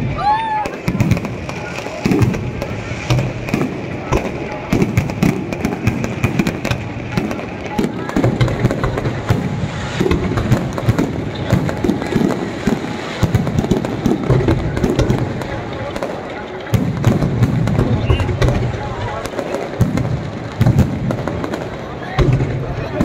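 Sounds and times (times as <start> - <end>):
firecrackers cracking and popping: 0.0 - 23.0
fireworks bangs rumbling: 0.0 - 23.0.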